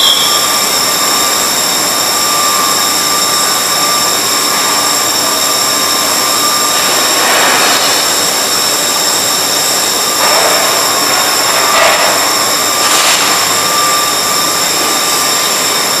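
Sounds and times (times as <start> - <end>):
high machine whine: 0.0 - 16.0
machinery hissing: 0.0 - 16.0.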